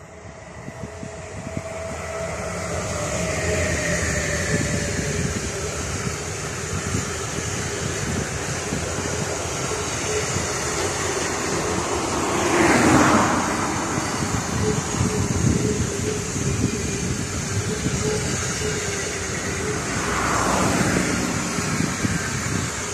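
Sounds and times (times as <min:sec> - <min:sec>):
steel wheels rumbling on rail: 0:00.0 - 0:22.9.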